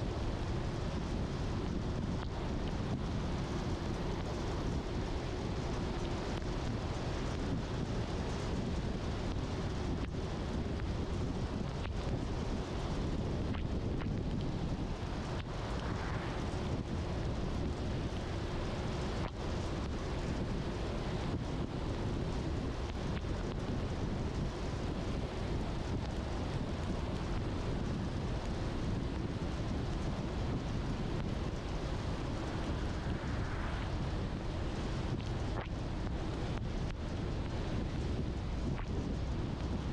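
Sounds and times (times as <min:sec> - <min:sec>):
car engine rumble: 0:00.0 - 0:39.9
rain: 0:00.0 - 0:39.9
faint ticks: 0:09.2 - 0:12.4, 0:15.2 - 0:16.0, 0:34.8 - 0:39.9
tyres hissing on wet road: 0:15.1 - 0:21.2, 0:30.7 - 0:35.5.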